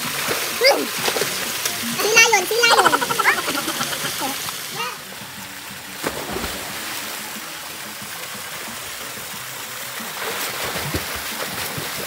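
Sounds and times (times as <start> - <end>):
pool water churning: 0.0 - 12.0
people jumping into pool splash: 5.8 - 7.5, 10.0 - 12.0.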